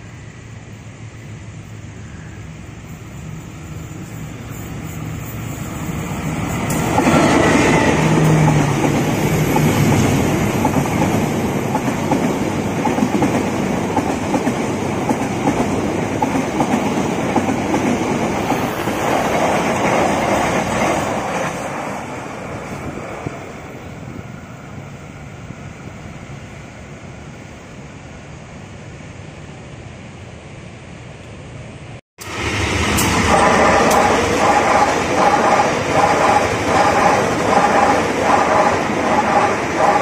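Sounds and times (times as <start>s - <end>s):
passenger train passing: 0.0s - 40.0s
train wheels clicking over rail: 32.2s - 40.0s.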